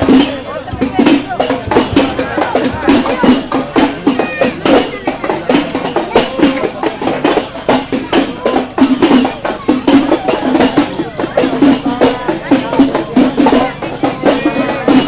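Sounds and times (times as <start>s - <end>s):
loud music with fast beat: 0.0s - 15.0s.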